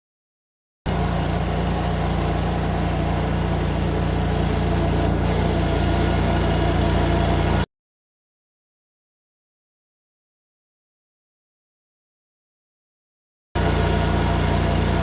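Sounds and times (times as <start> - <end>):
sawmill machine hum: 0.9 - 7.7, 13.6 - 15.0.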